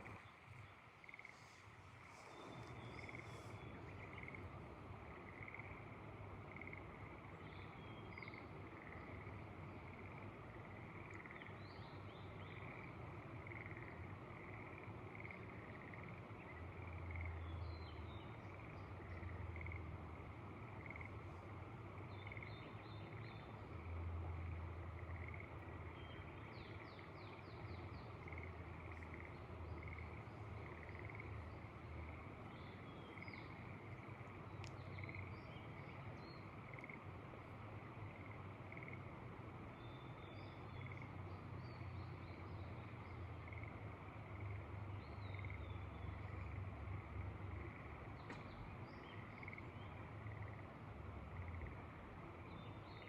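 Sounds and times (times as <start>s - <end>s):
frog chorus: 0.0s - 53.0s.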